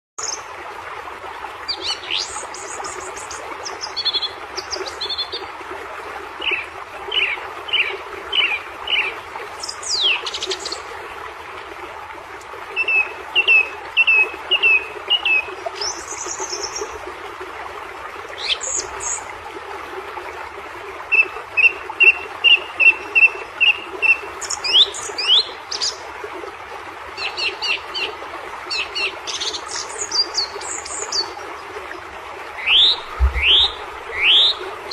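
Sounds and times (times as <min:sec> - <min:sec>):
birds chirping: 0:32.6 - 0:34.9.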